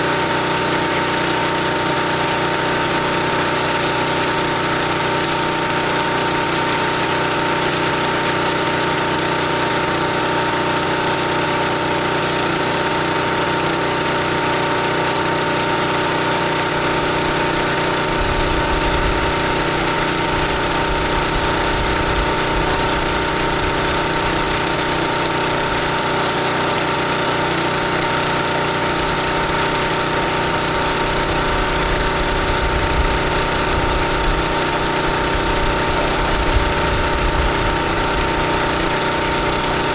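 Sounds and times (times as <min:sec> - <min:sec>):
pressure washer engine running: 0:00.0 - 0:39.9
water jet hissing: 0:16.1 - 0:39.9.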